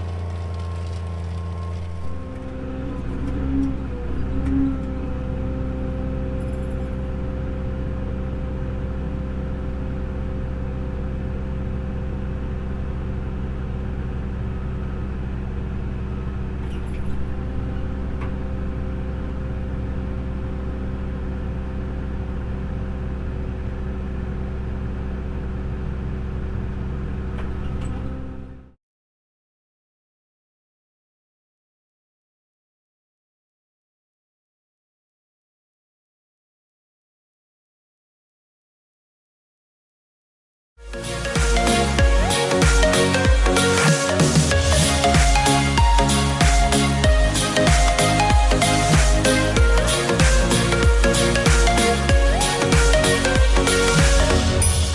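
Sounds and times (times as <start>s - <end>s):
tractor engine droning: 0.0s - 28.8s, 40.8s - 54.9s.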